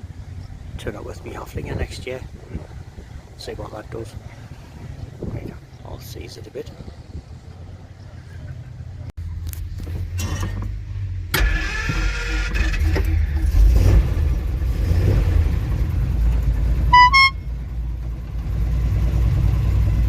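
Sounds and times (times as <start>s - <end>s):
truck engine rumbling: 0.0s - 20.0s
horn toots: 16.9s - 17.6s.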